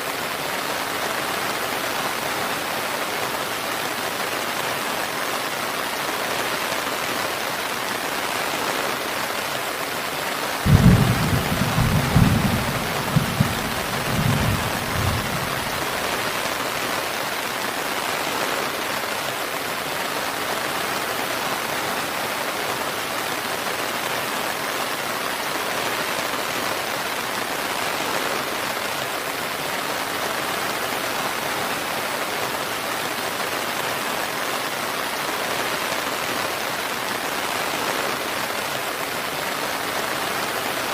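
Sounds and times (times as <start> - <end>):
heavy rain hissing: 0.0 - 40.9
thunder clap and rumbles: 10.7 - 16.2.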